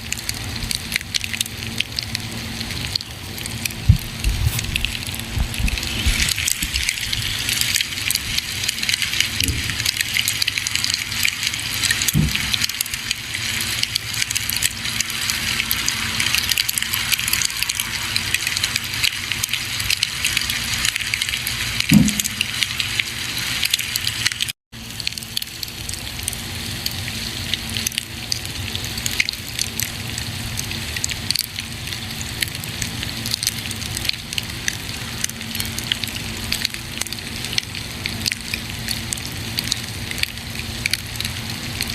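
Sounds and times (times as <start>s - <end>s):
campfire crackling: 0.0s - 27.6s
burning wood popping: 3.2s - 19.0s.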